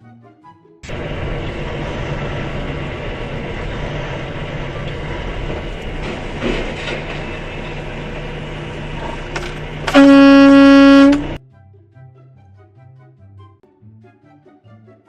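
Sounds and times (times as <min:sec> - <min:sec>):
engine rumble: 0:00.8 - 0:11.4
horn blast: 0:09.7 - 0:11.4.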